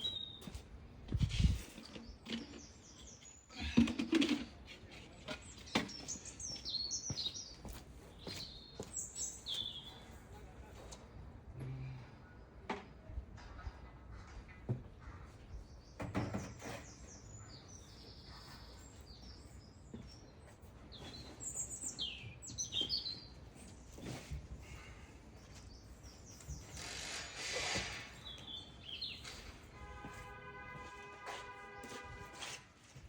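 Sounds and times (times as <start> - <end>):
small birds chirping: 1.6 - 3.8, 5.1 - 10.4, 15.1 - 29.7.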